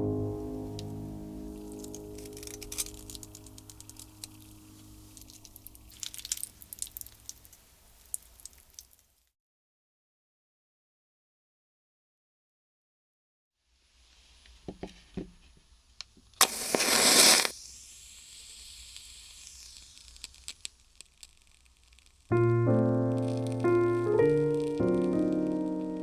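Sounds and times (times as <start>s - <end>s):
piano music: 0.0s - 6.2s, 22.3s - 26.0s
food sizzling in a frying pan: 0.6s - 9.2s, 16.4s - 22.4s.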